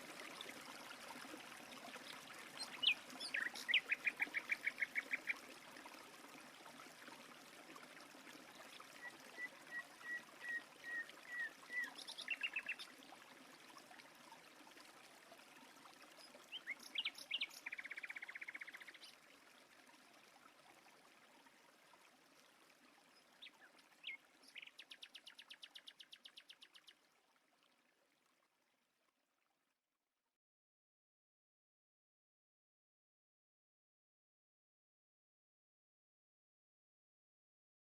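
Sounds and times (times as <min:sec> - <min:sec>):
flowing water: 0:00.0 - 0:29.7
songbirds calling and trilling: 0:02.5 - 0:05.4, 0:09.0 - 0:13.0, 0:16.2 - 0:19.2, 0:23.1 - 0:27.0.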